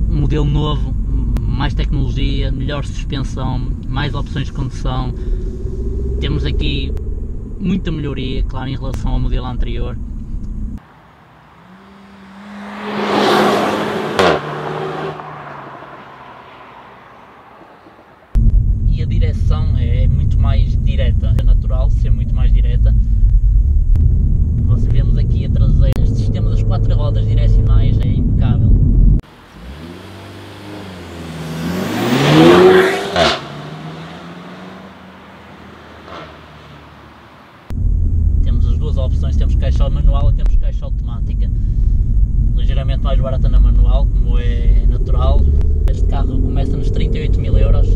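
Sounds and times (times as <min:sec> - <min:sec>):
car engine revving: 0:03.3 - 0:09.0, 0:09.9 - 0:40.1, 0:41.6 - 0:47.9
car driving past: 0:10.8 - 0:18.4, 0:29.3 - 0:37.7.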